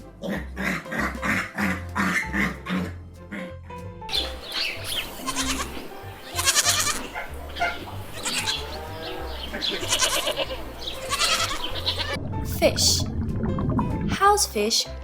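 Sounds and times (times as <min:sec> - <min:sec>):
peacock calling: 0:04.1 - 0:12.2.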